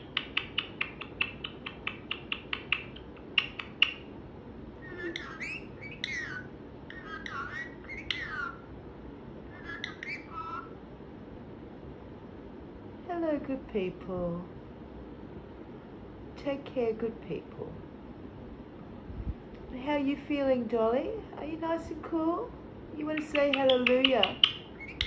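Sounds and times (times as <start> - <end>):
parakeet whistled calls: 0.0 - 4.1, 4.8 - 8.7, 9.5 - 10.8, 23.2 - 25.0
parakeet chirping: 0.0 - 4.2, 4.8 - 8.7, 9.4 - 10.8, 23.0 - 25.0.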